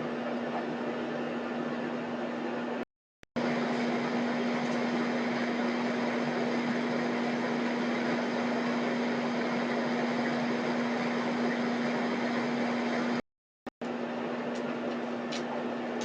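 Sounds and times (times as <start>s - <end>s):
machine hum with hiss: 3.4s - 13.2s.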